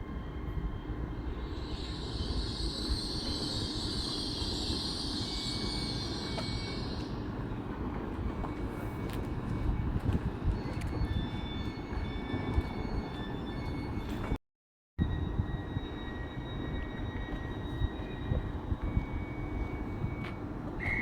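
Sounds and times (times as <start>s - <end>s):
wheels hissing on rails: 0.0s - 9.4s
train rumbling: 0.0s - 14.4s, 15.0s - 21.0s.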